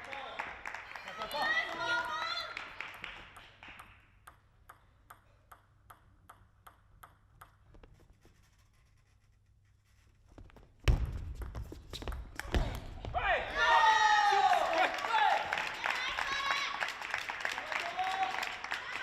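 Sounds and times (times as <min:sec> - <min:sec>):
table tennis ball clicking: 0:03.4 - 0:08.0.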